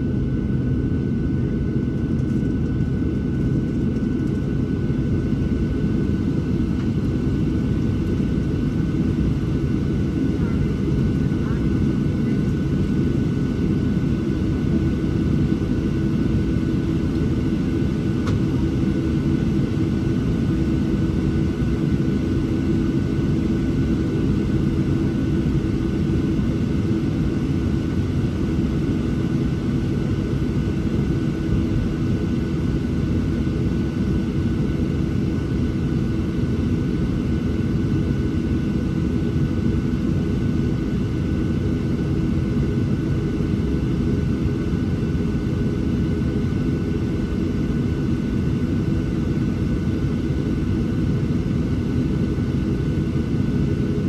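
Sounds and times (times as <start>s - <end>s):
aircraft cabin rumble: 0.0s - 38.3s.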